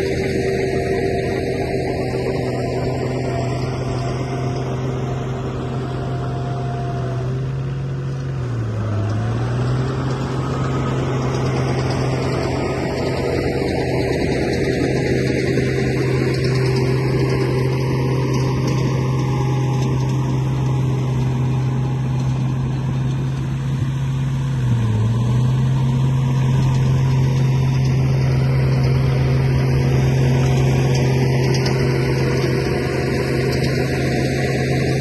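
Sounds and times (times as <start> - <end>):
engine humming: 0.0 - 35.0.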